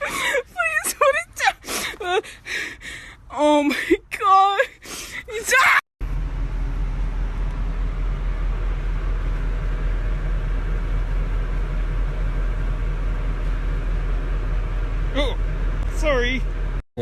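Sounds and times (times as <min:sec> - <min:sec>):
car driving low rumble: 0:06.0 - 0:16.8.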